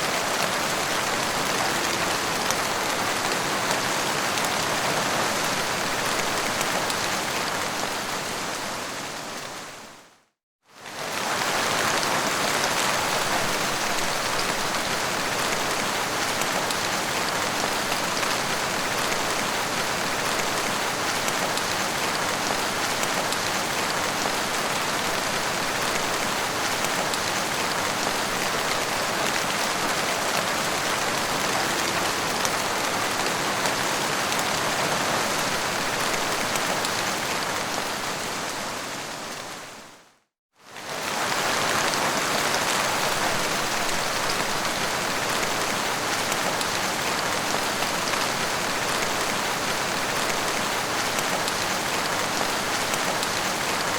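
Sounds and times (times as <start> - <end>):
heavy rain falling: 0.0 - 9.9, 10.8 - 40.0, 40.7 - 53.9.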